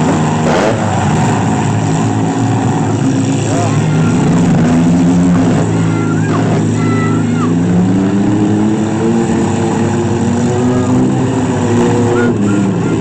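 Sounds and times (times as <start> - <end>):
engines revving: 0.0 - 13.0
vehicles colliding: 0.0 - 13.0
high squeals: 0.1 - 7.9, 10.5 - 13.0.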